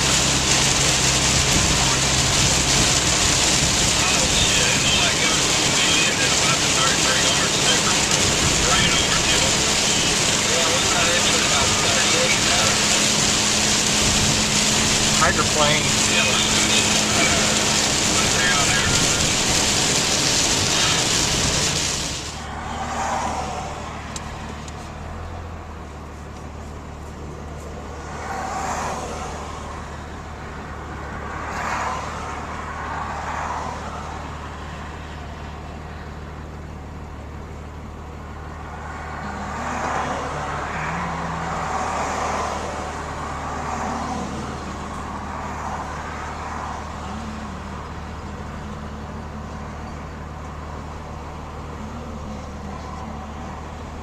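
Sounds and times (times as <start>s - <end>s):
rain and tyre spray hiss: 0.0s - 54.0s
road noise: 0.0s - 54.0s
truck engine drone: 0.0s - 54.0s.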